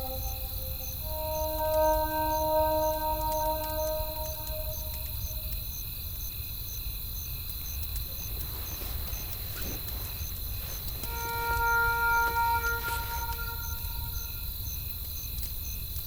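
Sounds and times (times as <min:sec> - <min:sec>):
held musical notes: 0:00.0 - 0:05.6, 0:11.0 - 0:14.5
cricket chirping: 0:00.0 - 0:16.0.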